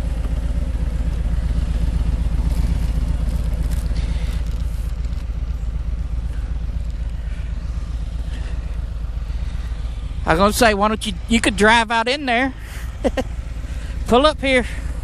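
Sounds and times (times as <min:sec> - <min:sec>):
motorcycle engine idling: 0:00.0 - 0:15.0
light rustling: 0:02.2 - 0:07.6.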